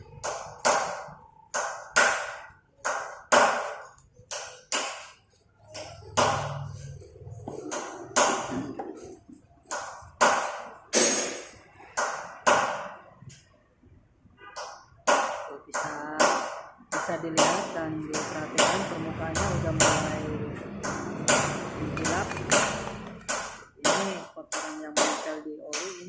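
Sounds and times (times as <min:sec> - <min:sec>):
sharp metallic taps: 0:20.8 - 0:26.0.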